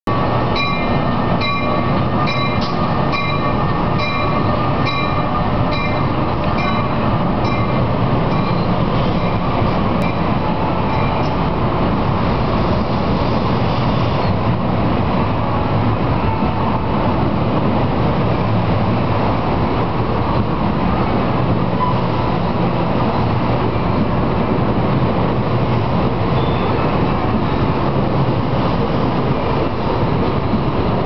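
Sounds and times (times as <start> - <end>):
train wheels rumbling on rail: 0.1 - 31.0.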